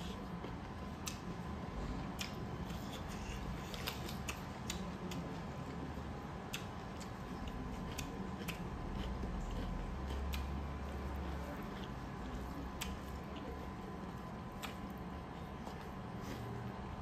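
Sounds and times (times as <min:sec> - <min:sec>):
steady low hum: 0:00.0 - 0:17.0
wet chewing clicks: 0:00.4 - 0:01.4, 0:02.1 - 0:05.4, 0:06.4 - 0:16.8
lip smacking: 0:01.0 - 0:01.3, 0:02.1 - 0:05.2, 0:11.8 - 0:13.2, 0:14.5 - 0:16.5.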